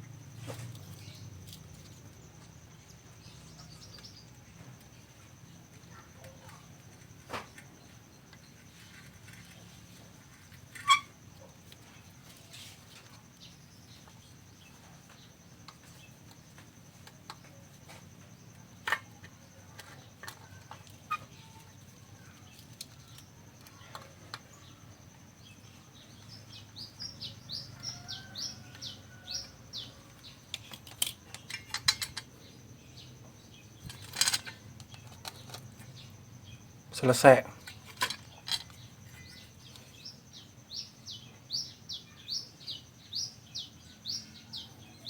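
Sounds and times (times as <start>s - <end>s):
small objects clicking: 22.3s - 24.7s, 30.1s - 32.4s, 33.8s - 36.1s.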